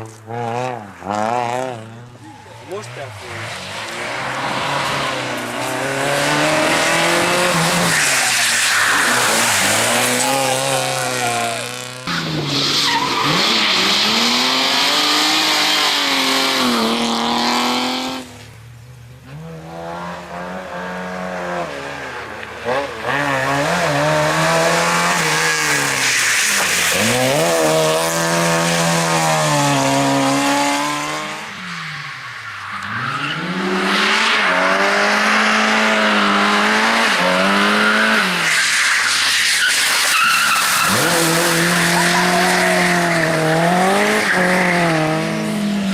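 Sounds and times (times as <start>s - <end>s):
race car engine revving: 0.0s - 18.4s, 32.9s - 45.9s
tyre squeal: 2.2s - 16.8s, 37.6s - 45.0s.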